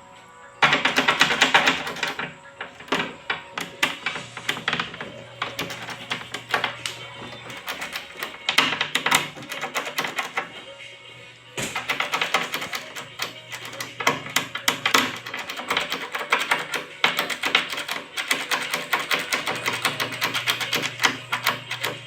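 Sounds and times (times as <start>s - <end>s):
door knob clicking and rattling: 0.6s - 10.6s.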